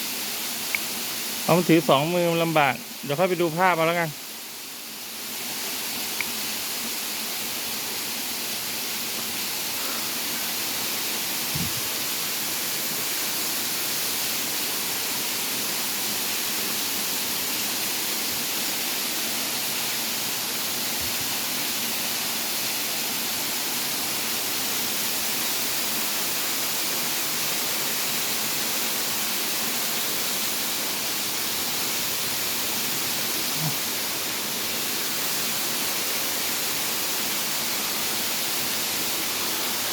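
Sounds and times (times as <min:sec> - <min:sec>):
waterfall rushing: 0:00.0 - 0:04.8, 0:05.5 - 0:39.9.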